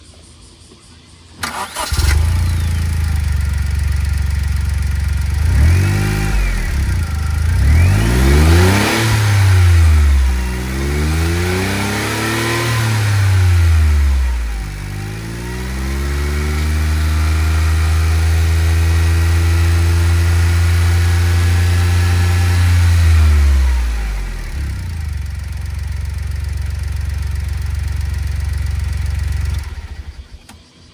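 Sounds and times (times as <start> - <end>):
car engine idling and revving: 1.4 - 30.6
engine cranking: 1.4 - 30.6.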